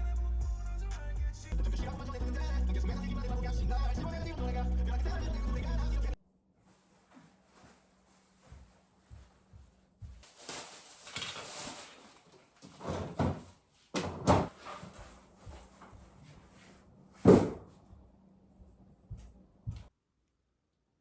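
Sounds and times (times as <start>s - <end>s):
loud thump: 17.2s - 17.7s.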